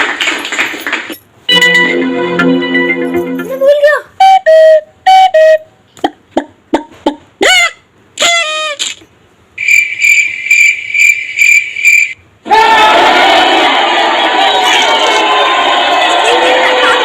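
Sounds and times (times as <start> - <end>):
cricket-like chirping: 9.6 - 12.2.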